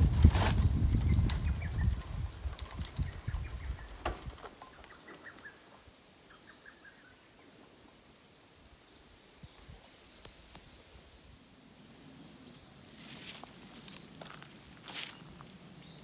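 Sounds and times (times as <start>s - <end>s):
faint bird chirps: 3.0s - 7.5s.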